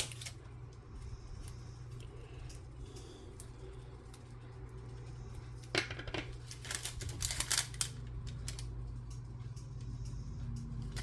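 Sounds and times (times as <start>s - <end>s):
tape and paper clicks and crackles: 0.0s - 0.5s, 5.6s - 9.6s.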